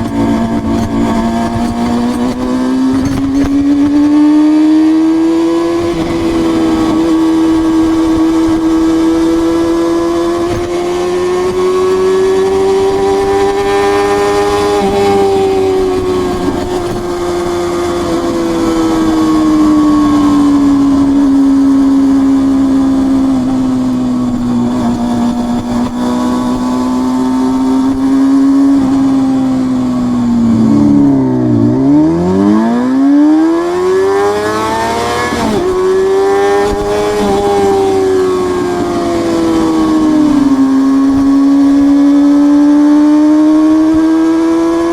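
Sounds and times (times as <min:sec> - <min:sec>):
motorcycle engine at high revs: 0:00.0 - 0:44.9.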